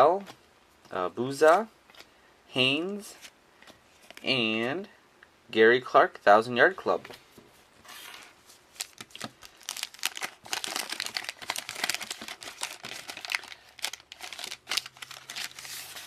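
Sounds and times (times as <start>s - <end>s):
wax paper wrapper tearing and crinkling: 8.7s - 16.0s.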